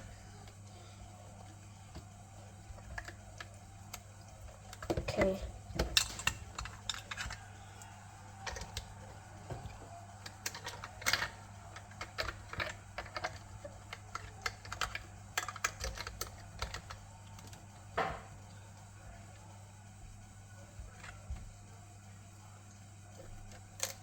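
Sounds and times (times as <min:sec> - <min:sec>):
low steady hum: 0:00.0 - 0:24.0
plastic bricks clicking: 0:04.7 - 0:07.6, 0:08.3 - 0:18.2.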